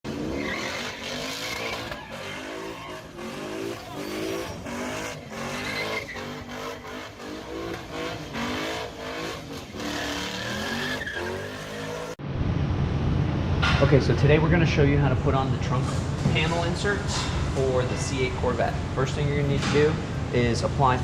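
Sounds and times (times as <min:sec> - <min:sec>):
car engine revving hard: 0:00.1 - 0:12.2.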